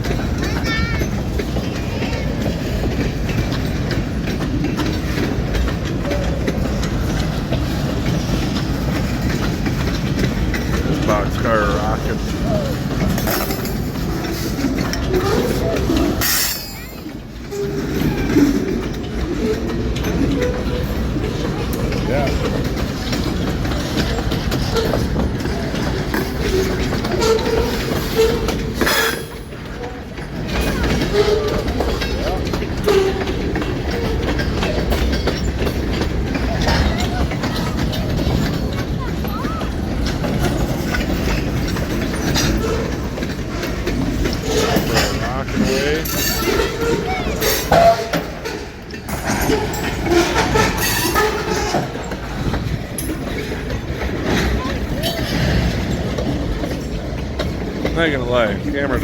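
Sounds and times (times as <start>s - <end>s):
clicks and knocks from train cars: 0.0s - 59.0s
train wheels rumbling on rails: 0.0s - 59.0s
faint wheel squeals: 44.2s - 52.4s.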